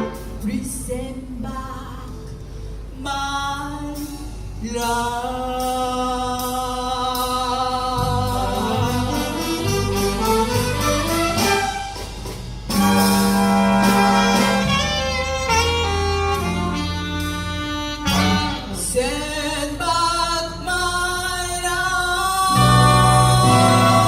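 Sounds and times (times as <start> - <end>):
jazz big band playing: 0.0 - 0.9, 4.0 - 19.9, 22.2 - 24.0
person singing: 3.0 - 9.9, 18.6 - 24.0.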